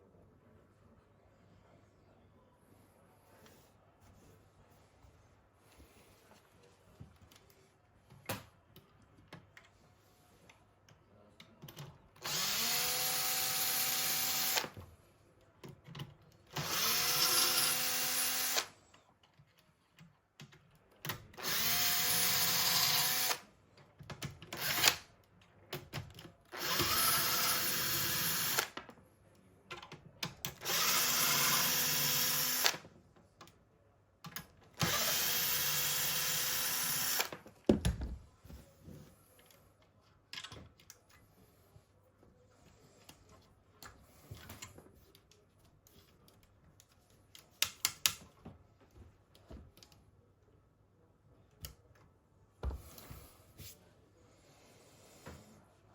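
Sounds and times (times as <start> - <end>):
small electric motor whirring: 16.6 - 18.7, 26.6 - 28.8, 30.6 - 32.8, 34.8 - 37.3.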